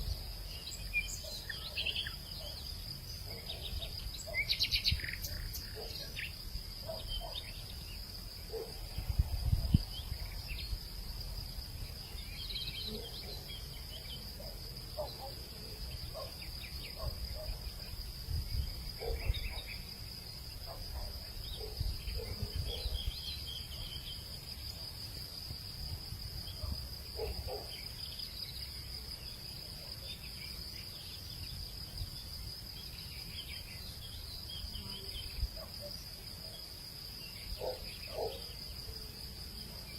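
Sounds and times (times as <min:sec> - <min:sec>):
insects droning: 0:00.0 - 0:39.9
wind rumbling on microphone: 0:08.8 - 0:10.8.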